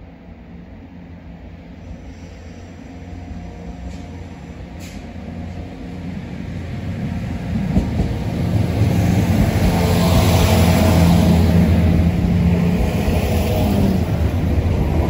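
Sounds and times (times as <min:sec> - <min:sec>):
diesel railcar engine drone: 0:00.0 - 0:15.0
wheel and rail hiss: 0:01.8 - 0:05.7.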